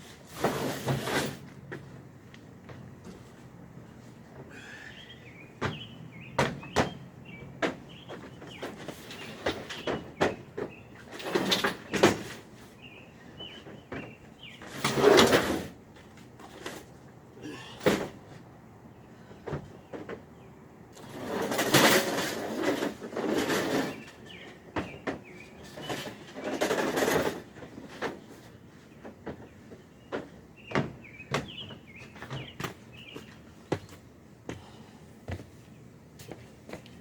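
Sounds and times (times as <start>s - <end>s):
small birds chirping: 4.5s - 11.2s, 12.6s - 14.8s, 23.8s - 26.3s, 28.7s - 37.0s.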